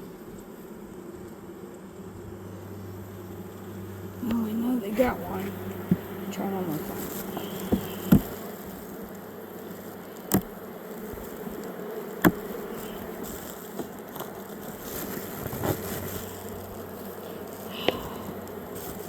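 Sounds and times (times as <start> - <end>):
honeybees buzzing: 0.0 - 19.0
sharp knocks: 7.2 - 8.4.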